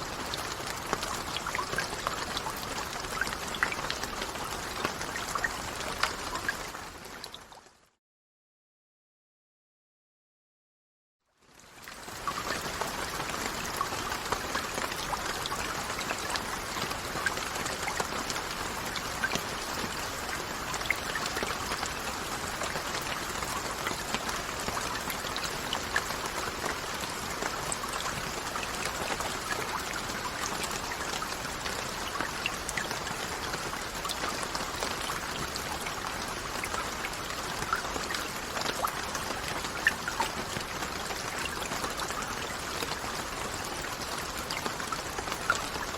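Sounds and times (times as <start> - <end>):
raindrop ticks: 11.8 - 43.4.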